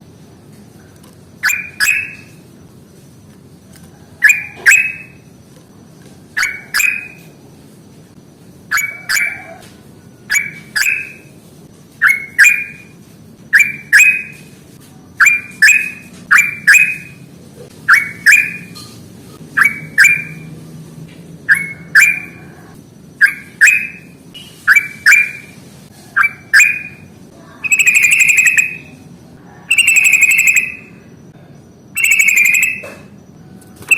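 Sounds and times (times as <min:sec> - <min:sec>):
bird chirping and chattering: 0:01.3 - 0:02.4, 0:04.2 - 0:05.2, 0:06.3 - 0:07.4, 0:08.7 - 0:09.5, 0:10.3 - 0:11.3, 0:12.0 - 0:14.6, 0:15.2 - 0:17.2, 0:17.8 - 0:20.5, 0:21.4 - 0:29.0, 0:29.6 - 0:31.0, 0:32.0 - 0:33.1.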